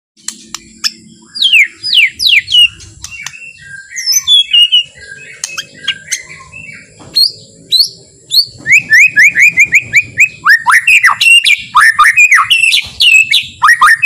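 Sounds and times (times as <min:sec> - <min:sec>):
sharp clicks: 0:00.2 - 0:00.9
bird whistling and warbling: 0:00.2 - 0:14.0.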